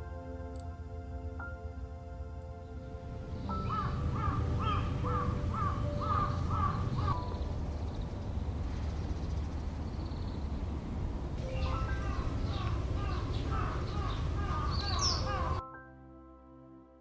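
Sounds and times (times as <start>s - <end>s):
low steady rumble: 1.8s - 15.6s
crow cawing: 3.5s - 7.4s, 11.6s - 15.6s.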